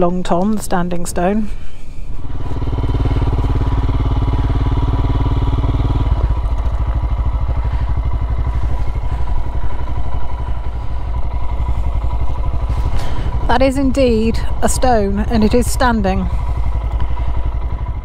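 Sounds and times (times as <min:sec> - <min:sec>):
motorcycle engine running: 0:01.4 - 0:18.0.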